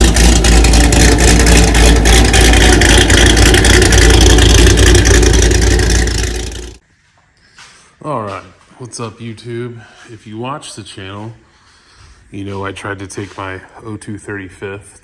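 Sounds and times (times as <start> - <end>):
car engine running: 0.0 - 6.8.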